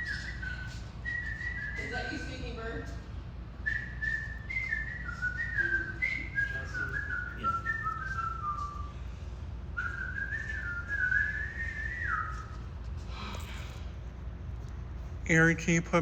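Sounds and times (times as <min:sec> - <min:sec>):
whistled tune: 0:00.0 - 0:09.2, 0:09.8 - 0:13.5
steady low hum: 0:00.0 - 0:16.0.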